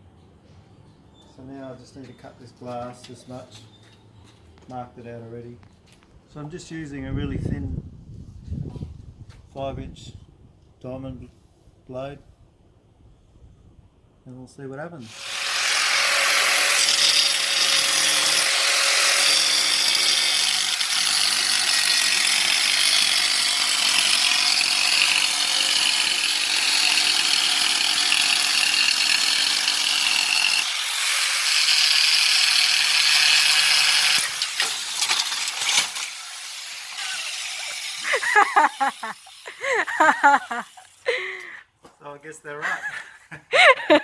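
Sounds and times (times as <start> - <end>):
angle grinder cutting glass: 15.1 - 41.1.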